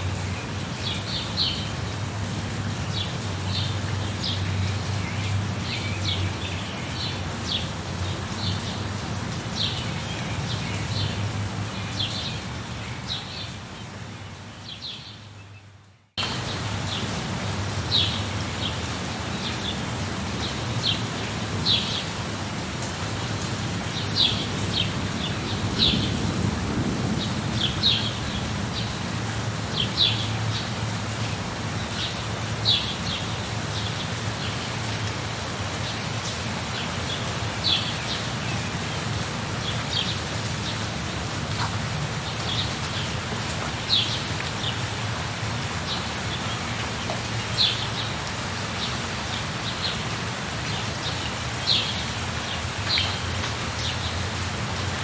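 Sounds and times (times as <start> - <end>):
steady rain: 0.0 - 55.0
thunder rumble: 25.5 - 29.2.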